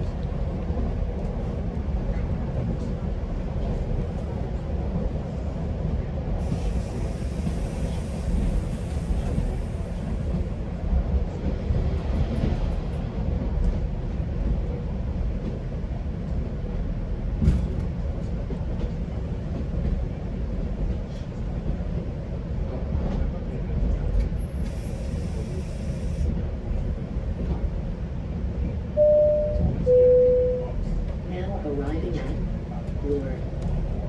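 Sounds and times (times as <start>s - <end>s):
train rumbling on track: 0.0s - 34.0s
hiss: 6.4s - 9.8s, 24.6s - 26.3s.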